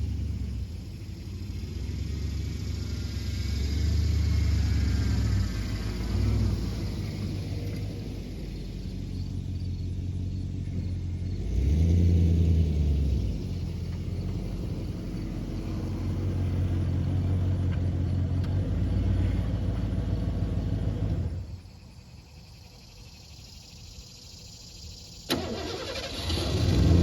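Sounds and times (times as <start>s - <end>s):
pickup truck engine running: 0.0s - 21.6s.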